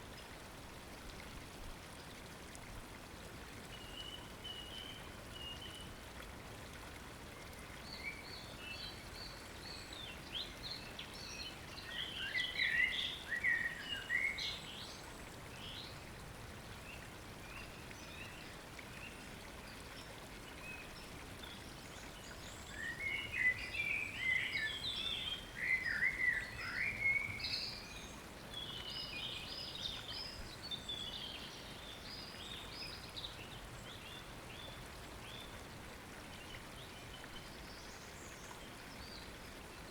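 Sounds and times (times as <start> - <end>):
stream water rushing: 11.3 - 14.5, 15.4 - 39.9.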